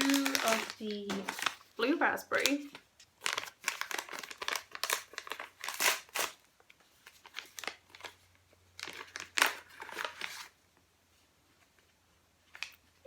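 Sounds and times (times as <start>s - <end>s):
tea packet crinkling: 0.0s - 6.4s, 7.0s - 10.5s.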